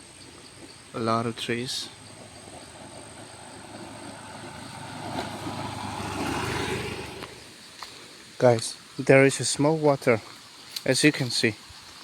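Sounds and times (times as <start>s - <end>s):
passing engine: 1.6s - 7.6s.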